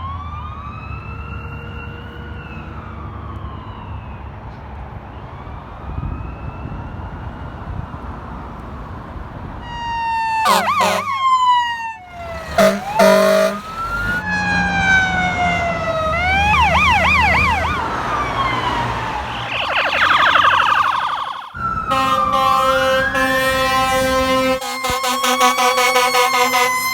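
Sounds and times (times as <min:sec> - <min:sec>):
emergency sirens wailing and yelping: 0:00.0 - 0:26.9
vehicle horn blasts: 0:10.4 - 0:11.2, 0:12.6 - 0:13.7, 0:21.9 - 0:26.8.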